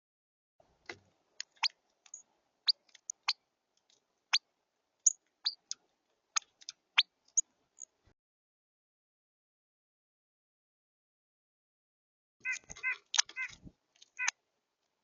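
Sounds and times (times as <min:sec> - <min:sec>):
bird chip calls: 0:04.3 - 0:05.8, 0:12.4 - 0:14.4.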